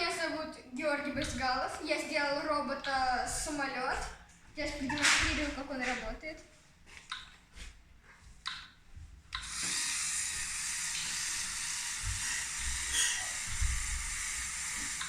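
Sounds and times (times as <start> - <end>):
clicks: 8.4 - 9.8
small electric motor whirring: 9.4 - 15.0.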